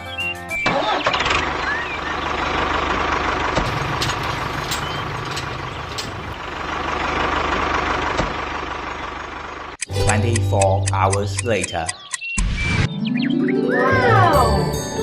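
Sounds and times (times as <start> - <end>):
sharp clicks: 9.7 - 12.5.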